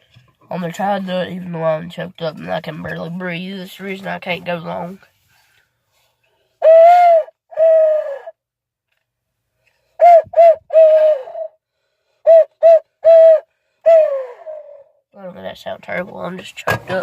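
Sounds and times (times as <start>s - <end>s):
owl hooter call hoots: 6.6s - 8.4s, 10.0s - 11.6s, 12.2s - 15.0s
person breathing heavily: 11.0s - 12.3s.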